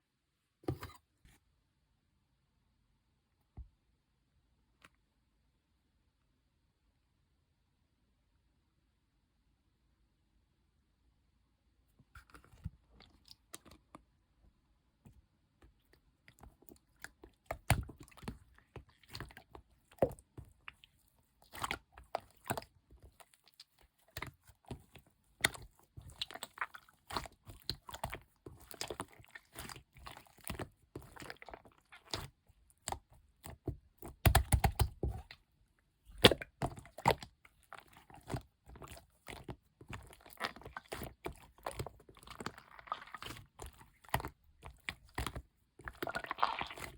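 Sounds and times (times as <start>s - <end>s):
slime squelching: 15.2s - 46.9s
slime clicking and popping: 34.0s - 35.3s.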